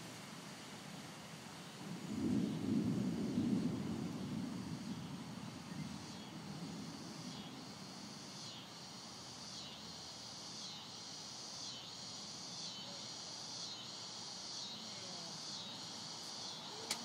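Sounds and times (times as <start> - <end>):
insect chorus pulsing: 0.0 - 17.0
steady hiss: 0.0 - 17.0
low thunder rumble: 1.8 - 8.3.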